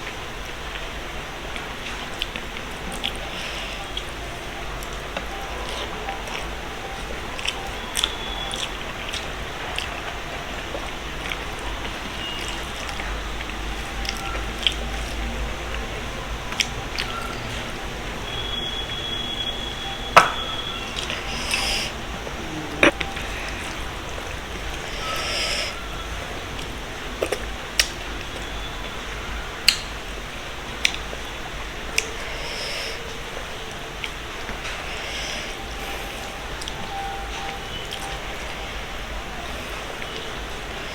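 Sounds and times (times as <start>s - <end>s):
steady background hiss: 0.0s - 40.9s
chewing: 4.8s - 15.9s, 20.2s - 25.8s
mouth clicks: 20.1s - 23.8s.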